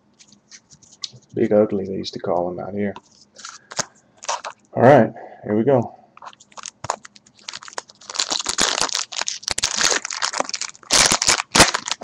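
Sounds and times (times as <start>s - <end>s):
plastic wrapper crinkling and tearing: 3.3s - 4.6s, 6.2s - 12.0s.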